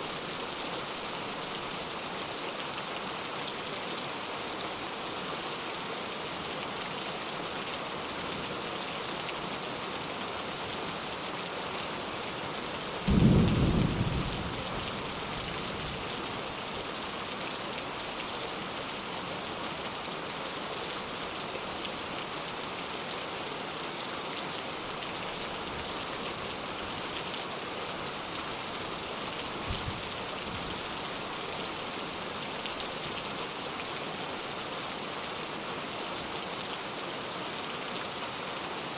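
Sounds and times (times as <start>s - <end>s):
steady rain hissing: 0.0s - 38.9s
sharp thunderclap: 13.1s - 15.9s.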